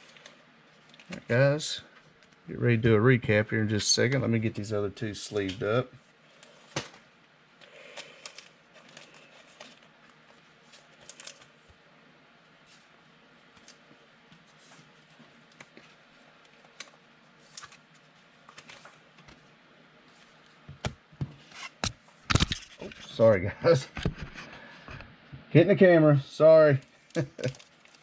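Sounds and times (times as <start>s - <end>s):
plastic rustling: 7.9s - 11.7s, 26.8s - 28.0s.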